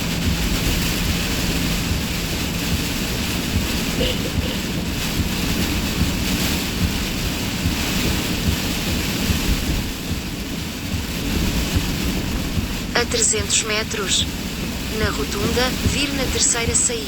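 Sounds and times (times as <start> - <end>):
gusting wind rumbling: 0.0 - 17.0
heavy rain hiss: 0.0 - 17.0.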